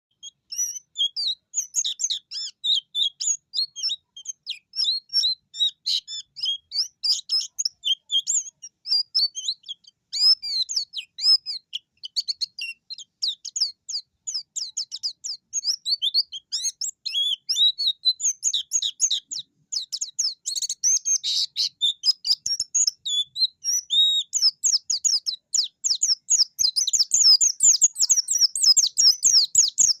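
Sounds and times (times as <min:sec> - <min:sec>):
bird singing rapid high chirps: 0:00.1 - 0:30.0.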